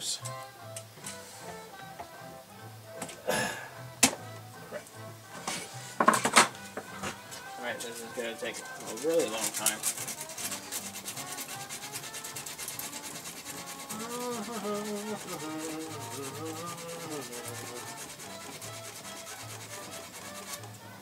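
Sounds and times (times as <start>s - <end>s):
hand sanding with sandpaper: 8.0s - 20.8s.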